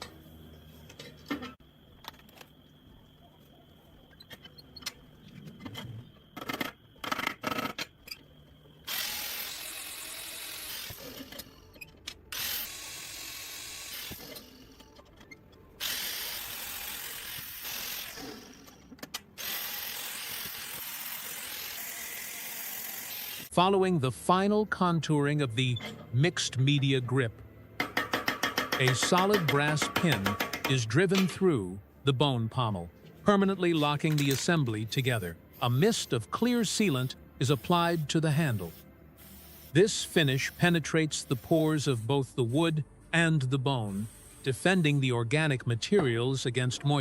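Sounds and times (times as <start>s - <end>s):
power tool running: 8.9s - 11.4s, 15.8s - 18.8s, 19.4s - 23.5s
handling clicks and taps: 27.8s - 31.3s.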